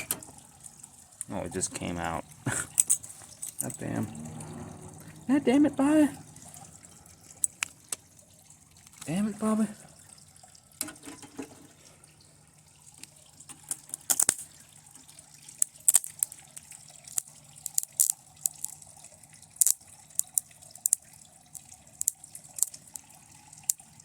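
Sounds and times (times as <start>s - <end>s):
faint low hum: 3.2s - 10.2s.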